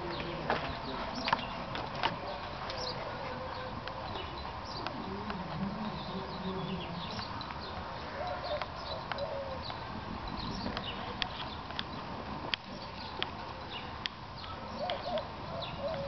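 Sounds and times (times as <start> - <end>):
outdoor background noise: 0.0 - 16.0
small birds chirping: 0.0 - 16.0.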